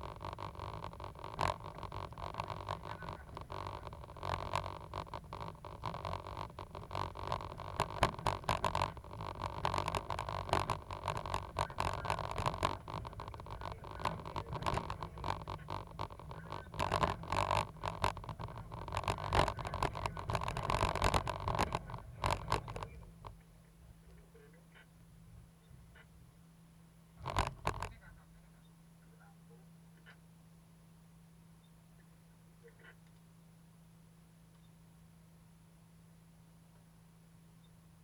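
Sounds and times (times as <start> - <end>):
sharp clicks and knocks: 0.0 - 23.5, 27.2 - 28.0.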